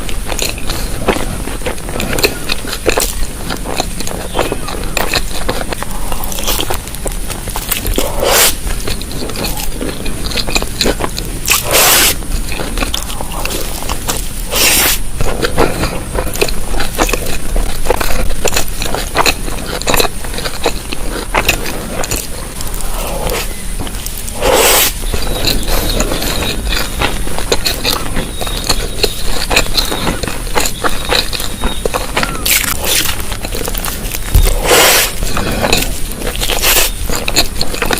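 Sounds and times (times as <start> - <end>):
mouth clicks and scrapes: 0.0 - 37.9
wet chewing and biting: 0.0 - 37.9.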